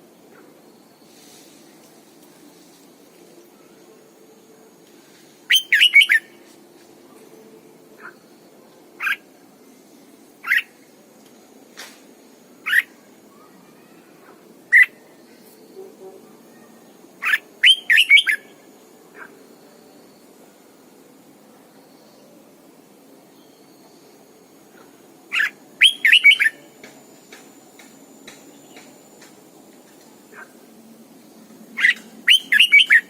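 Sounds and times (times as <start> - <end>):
bird singing whistled notes: 5.5 - 6.4, 17.2 - 18.6, 25.3 - 26.7, 31.8 - 33.0.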